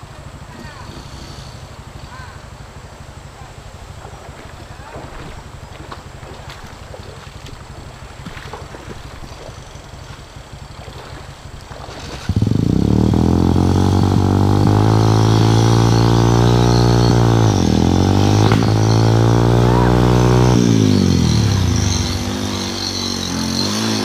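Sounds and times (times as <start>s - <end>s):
water: 0.0s - 12.8s
motorcycle engine running: 0.0s - 24.0s
wind: 0.0s - 24.0s.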